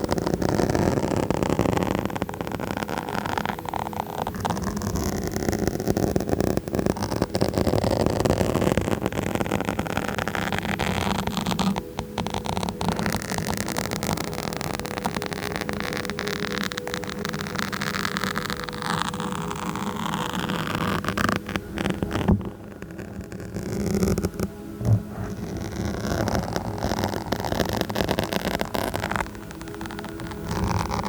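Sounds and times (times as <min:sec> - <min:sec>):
fingers scratching a microphone: 0:00.0 - 0:31.0
microphone bumps: 0:19.9 - 0:31.0.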